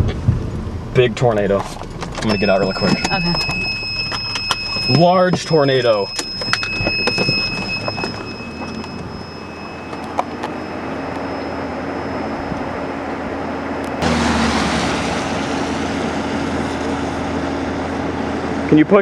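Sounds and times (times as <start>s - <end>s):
vehicle noise with low hum: 0.0s - 19.0s
high-pitched inverter beep: 2.2s - 14.0s.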